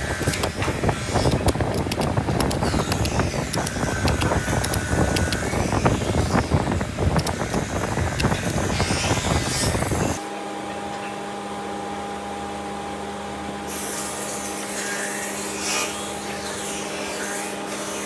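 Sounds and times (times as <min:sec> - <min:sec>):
electric power tool working wood: 0:00.0 - 0:10.2.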